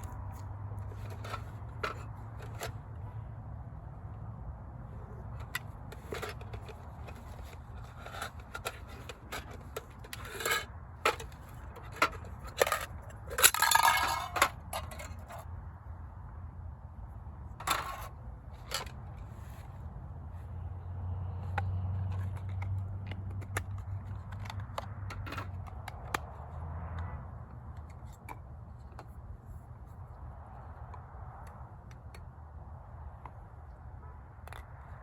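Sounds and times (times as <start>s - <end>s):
small objects clicking and scraping: 0.0s - 3.0s, 5.2s - 15.5s, 17.6s - 19.7s, 21.4s - 27.1s.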